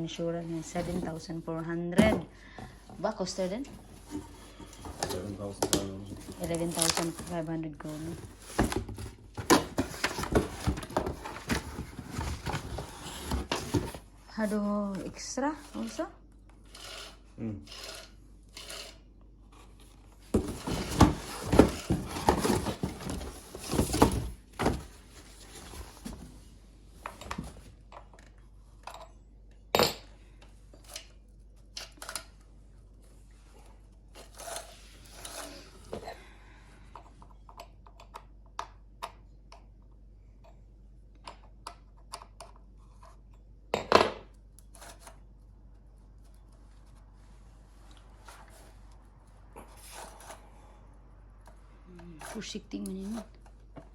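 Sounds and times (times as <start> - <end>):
rustling and clattering: 0.6 - 14.4, 19.6 - 29.0.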